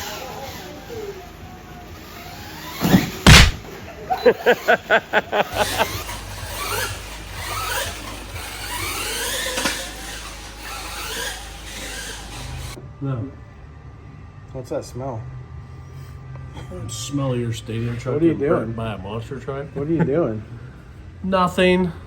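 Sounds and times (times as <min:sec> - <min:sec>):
electric rc truck motors whining: 0:00.0 - 0:03.6, 0:04.3 - 0:12.8
loud knocks: 0:02.8 - 0:03.6
short pulses: 0:02.8 - 0:03.7.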